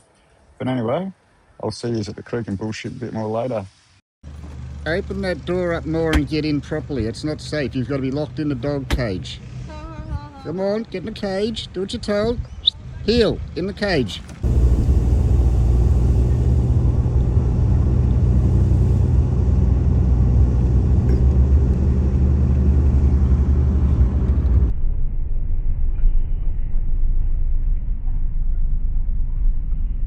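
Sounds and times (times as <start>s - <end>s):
car engine: 4.2s - 24.7s
road noise: 4.2s - 24.7s
hiss: 14.4s - 20.9s.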